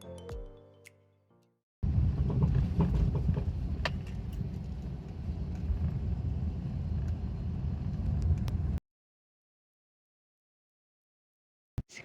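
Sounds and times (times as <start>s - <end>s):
road rumble: 1.8s - 8.8s.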